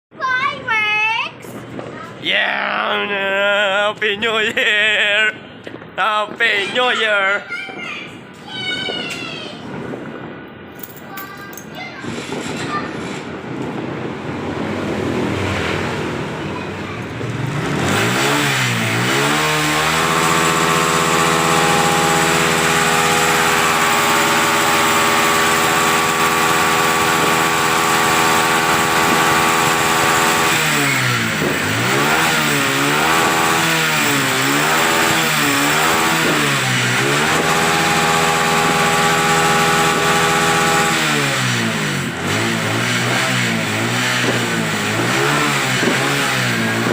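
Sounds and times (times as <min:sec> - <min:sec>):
motorcycle engine revving: 0:14.1 - 0:16.4, 0:17.1 - 0:46.9.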